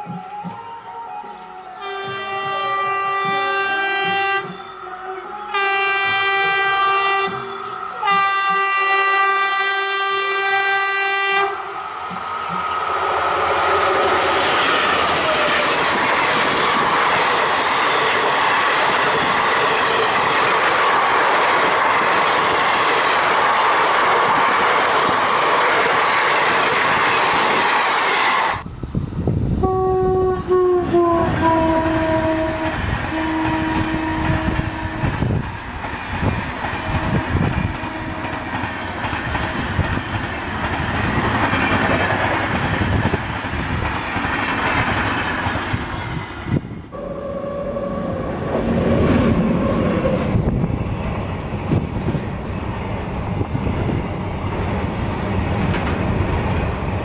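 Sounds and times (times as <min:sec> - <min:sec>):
train wheels rolling on rail: 0:00.0 - 0:29.7, 0:30.4 - 0:57.0
locomotive horn blasts: 0:01.8 - 0:11.7, 0:29.6 - 0:35.4, 0:36.8 - 0:38.5, 0:46.9 - 0:50.2.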